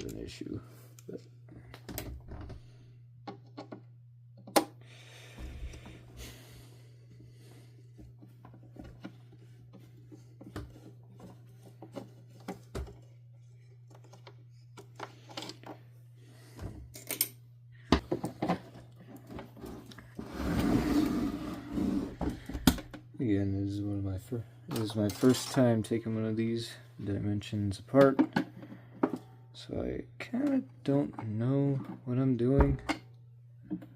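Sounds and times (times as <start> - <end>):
steady low hum: 0.0 - 33.9
plastic parts clicking and clattering: 8.4 - 15.8, 16.9 - 20.0, 24.7 - 25.7.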